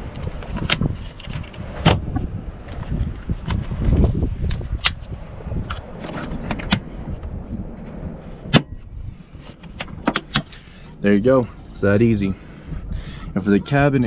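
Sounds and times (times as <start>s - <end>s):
wind rumble on microphone: 0.0s - 14.0s
latch clips snapping shut: 9.7s - 10.6s.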